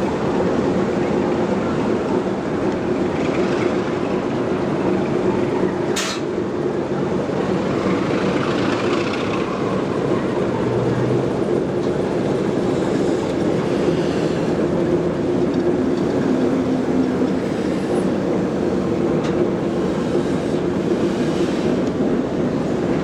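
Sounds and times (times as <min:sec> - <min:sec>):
steam locomotive running: 0:00.0 - 0:23.0
sharp steam hiss: 0:19.7 - 0:21.8.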